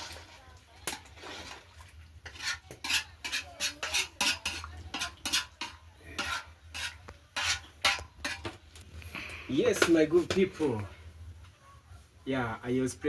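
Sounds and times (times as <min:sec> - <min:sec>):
spoon stirring in a pot: 0:00.0 - 0:09.0.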